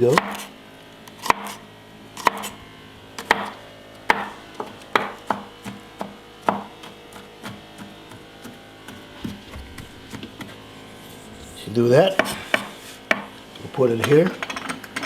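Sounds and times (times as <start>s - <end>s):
knife chopping on cutting board: 0.1s - 0.5s, 1.2s - 1.6s, 2.2s - 2.5s, 3.2s - 10.6s, 12.1s - 13.3s.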